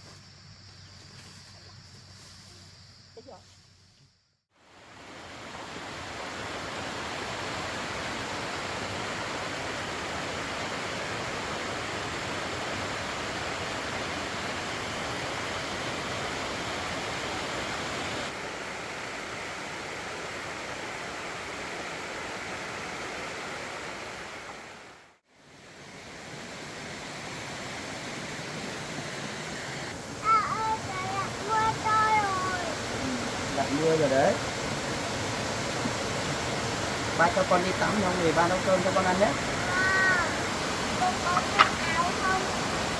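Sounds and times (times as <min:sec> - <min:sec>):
heavy rain falling: 0:28.8 - 0:42.9.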